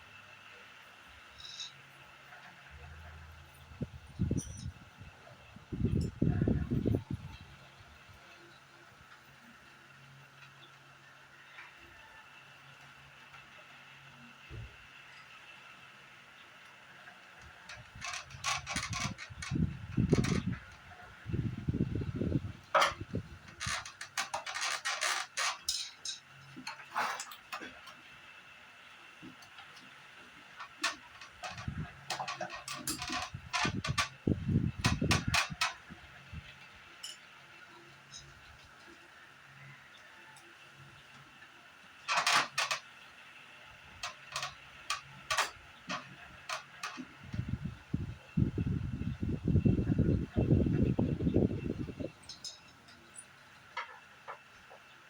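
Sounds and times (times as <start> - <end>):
tools clicking and scraping: 1.3 - 1.8, 22.7 - 28.0, 30.6 - 35.9, 36.6 - 37.3.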